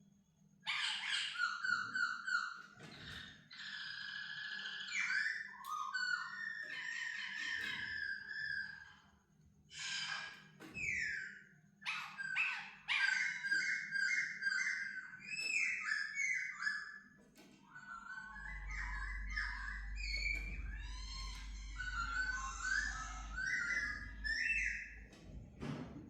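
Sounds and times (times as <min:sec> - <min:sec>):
bird singing whistled phrases: 0:17.7 - 0:25.0
low rumble: 0:18.3 - 0:25.6.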